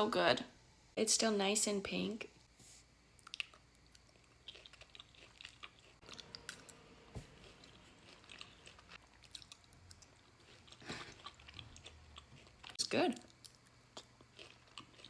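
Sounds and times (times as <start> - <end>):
close-miked chewing: 3.2 - 15.0.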